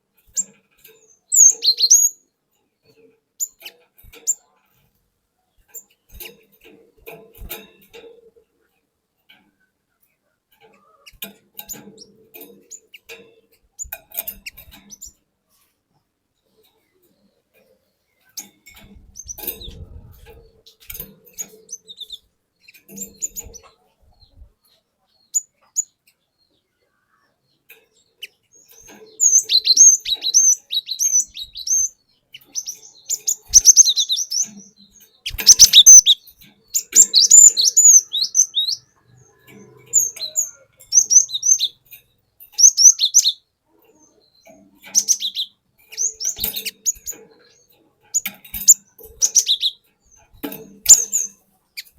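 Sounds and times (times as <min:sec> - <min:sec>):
bird singing high chirps: 0:00.3 - 0:02.2, 0:18.2 - 0:50.2, 0:50.8 - 0:51.9.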